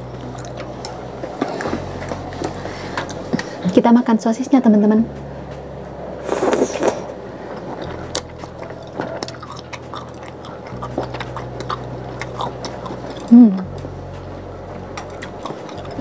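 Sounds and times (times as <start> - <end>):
steady low hum: 0.0 - 16.0
biting sausage: 6.2 - 13.9
chewing with wet mouth clicks: 6.3 - 13.9, 15.0 - 16.0.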